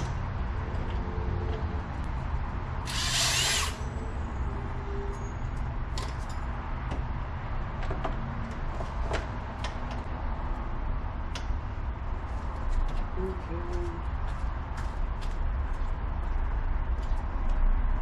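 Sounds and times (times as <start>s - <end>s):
power tool burst: 2.9s - 3.8s.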